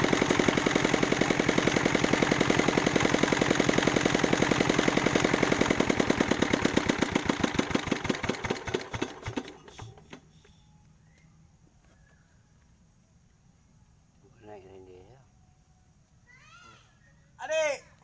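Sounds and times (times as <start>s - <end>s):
diesel engine knocking: 0.0s - 10.2s.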